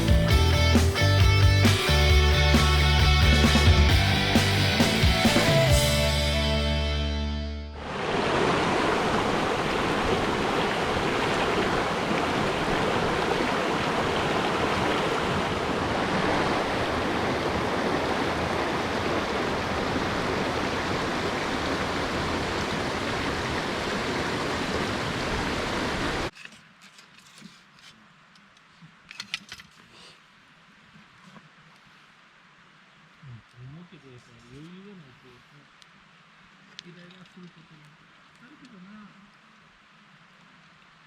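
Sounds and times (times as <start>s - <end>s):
water rushing: 0.0s - 6.5s, 7.7s - 26.3s.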